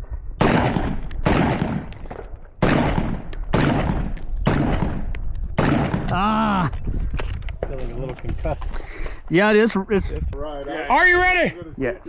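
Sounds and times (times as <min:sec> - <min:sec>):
rifle shots echoing: 0:00.4 - 0:06.3.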